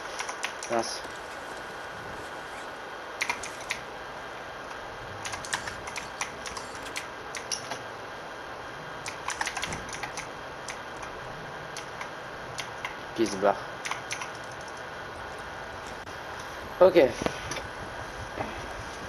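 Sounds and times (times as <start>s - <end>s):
steady background hiss: 0.0s - 19.0s
keyboard keys clicking: 9.1s - 10.8s, 13.8s - 14.8s.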